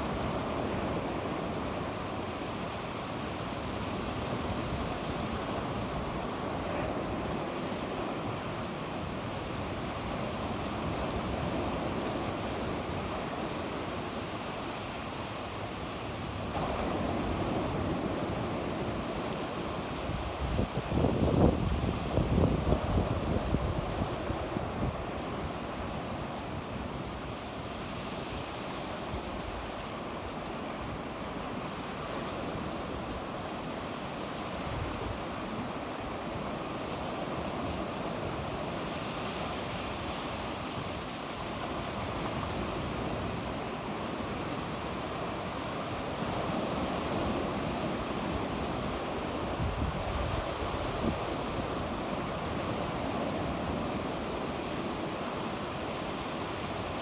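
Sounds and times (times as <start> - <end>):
sea waves washing ashore: 0.0 - 57.0
wind noise on microphone: 16.2 - 31.1, 34.2 - 54.7.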